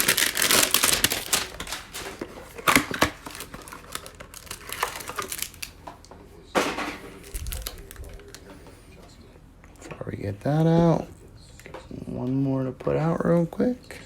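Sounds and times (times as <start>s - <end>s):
cardboard box tearing: 0.0s - 1.9s.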